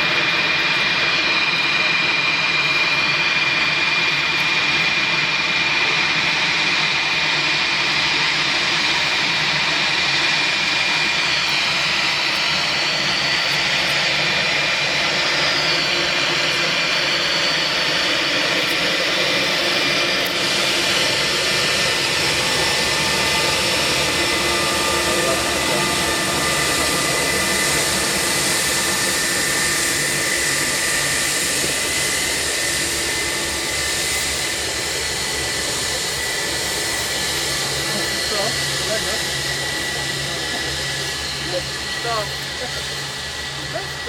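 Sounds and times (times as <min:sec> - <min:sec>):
jet engines roaring: 0:00.0 - 0:44.0.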